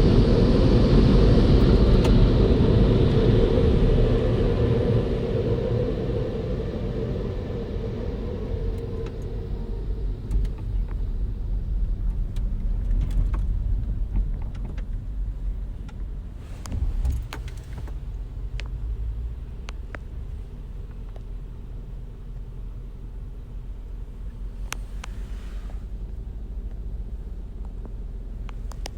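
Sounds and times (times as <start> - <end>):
car engine rumbling: 0.0 - 28.9
light clicks and ticks: 28.4 - 28.9.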